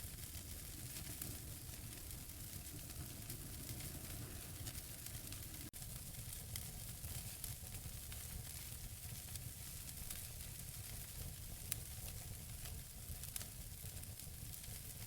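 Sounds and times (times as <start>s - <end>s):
burning logs crackling: 0.0s - 15.0s
fire hissing and rumbling: 0.0s - 15.0s.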